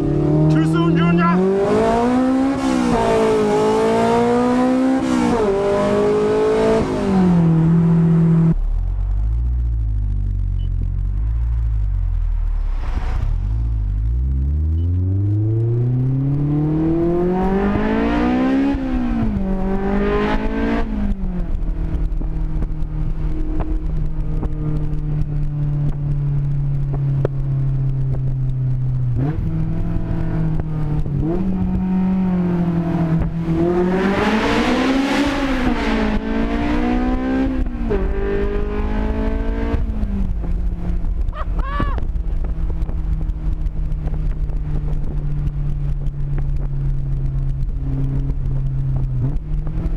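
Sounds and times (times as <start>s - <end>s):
loud car engine revving: 0.0s - 25.2s, 29.1s - 43.2s.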